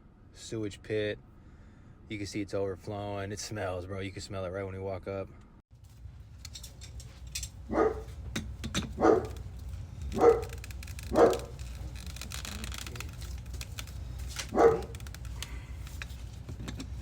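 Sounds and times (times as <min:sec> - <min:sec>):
small dog barking: 0:07.7 - 0:08.2, 0:09.0 - 0:09.4, 0:10.1 - 0:11.5, 0:14.5 - 0:15.0.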